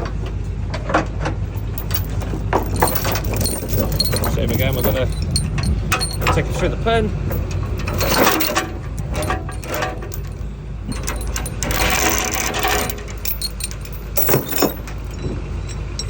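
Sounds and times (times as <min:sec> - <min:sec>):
steel chain clinking and rattling: 0:01.6 - 0:16.0.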